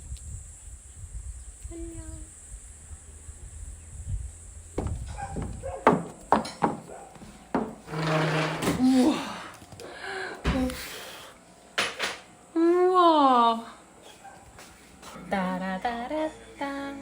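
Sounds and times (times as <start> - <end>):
sharp knocks and clatters: 4.8 - 8.8
rough rubbing scrape: 7.6 - 9.0.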